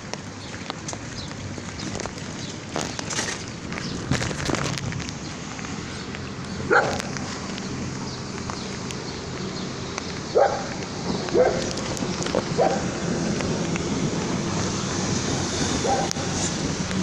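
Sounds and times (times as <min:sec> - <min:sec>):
dog barking: 0:06.7 - 0:07.1, 0:10.3 - 0:11.7, 0:12.6 - 0:12.9, 0:15.8 - 0:16.2.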